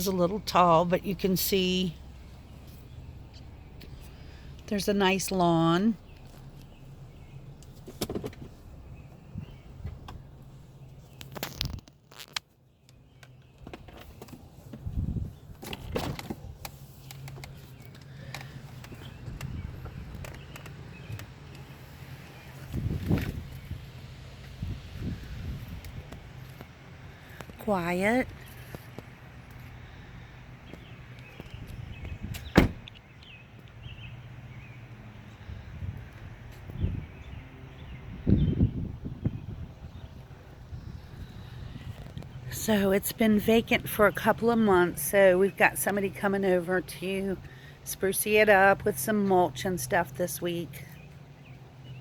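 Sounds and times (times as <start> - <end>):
car engine humming from cabin: 0.0 - 11.2
dull thump: 32.4 - 32.9.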